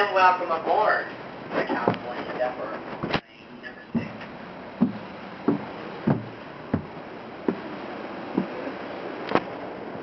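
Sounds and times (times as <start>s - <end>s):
train rumble: 3.5s - 9.2s
wheels knocking over rail joints: 4.0s - 7.7s.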